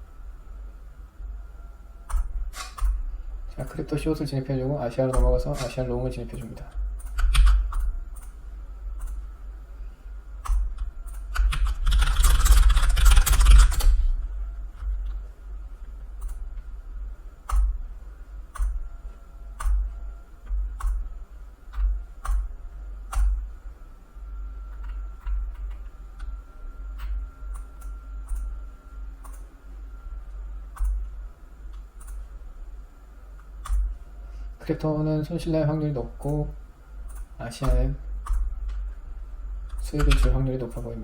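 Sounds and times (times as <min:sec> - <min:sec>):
steady low hum: 0:00.0 - 0:41.0
computer mouse clicks: 0:10.4 - 0:14.0, 0:16.2 - 0:16.4, 0:19.6 - 0:21.1, 0:21.7 - 0:22.5, 0:29.2 - 0:29.5, 0:30.7 - 0:31.1, 0:31.7 - 0:32.2.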